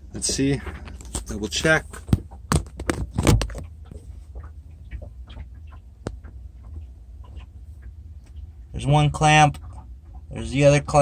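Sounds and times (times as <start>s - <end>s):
low steady hum: 0.0s - 11.0s
small clicks and taps: 2.0s - 8.5s.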